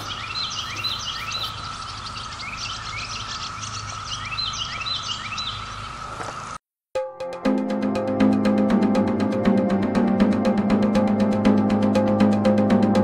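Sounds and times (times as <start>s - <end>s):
cicadas droning: 0.0s - 6.6s
songbirds singing: 0.0s - 6.6s.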